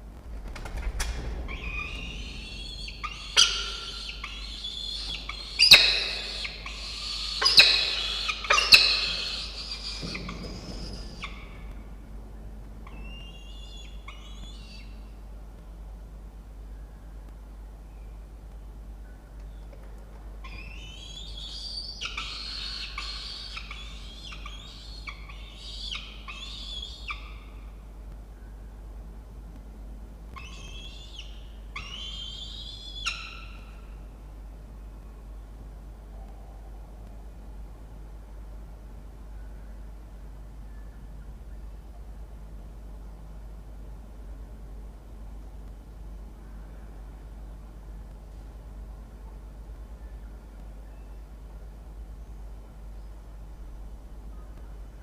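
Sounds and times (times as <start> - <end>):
falcons wailing calls: 1.6 - 11.7, 21.3 - 27.3.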